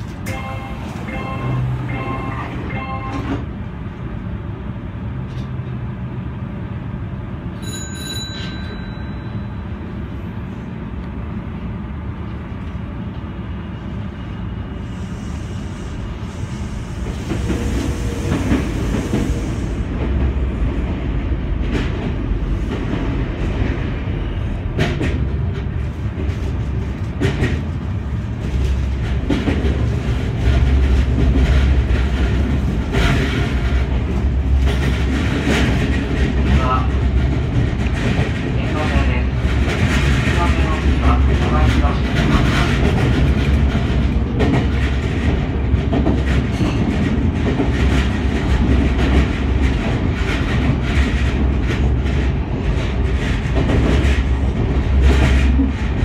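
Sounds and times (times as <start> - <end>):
electric train rolling rumble: 0.0 - 56.0
passing train rush: 0.0 - 56.0
rail-joint clicks: 5.2 - 5.8, 28.4 - 56.0.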